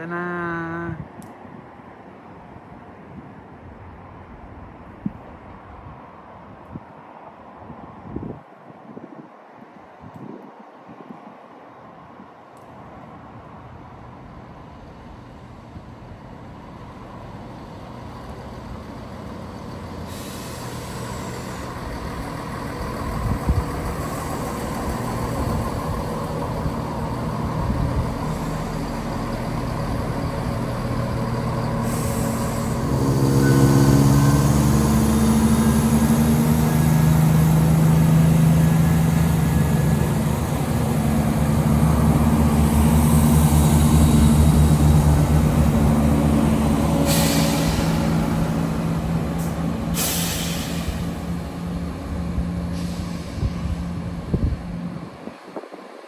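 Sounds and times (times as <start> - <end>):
diesel train engine rumble: 12.8 - 56.0.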